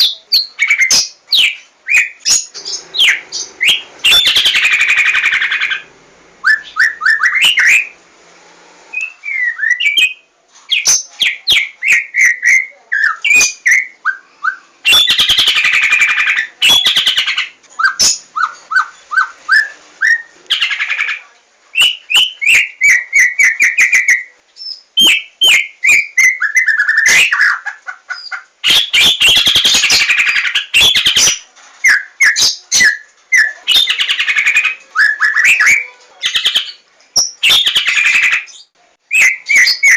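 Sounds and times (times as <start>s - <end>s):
harsh rattling bird calls: 0.4s - 8.0s, 14.8s - 21.2s, 21.8s - 39.9s
bird singing whistled notes: 6.4s - 8.0s, 8.9s - 10.2s, 31.9s - 39.9s.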